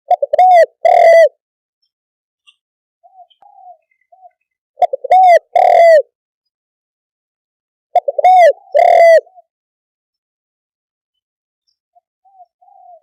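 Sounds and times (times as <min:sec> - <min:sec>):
dove cooing: 0:00.1 - 0:01.4, 0:03.0 - 0:06.1, 0:07.9 - 0:09.5, 0:12.2 - 0:13.0.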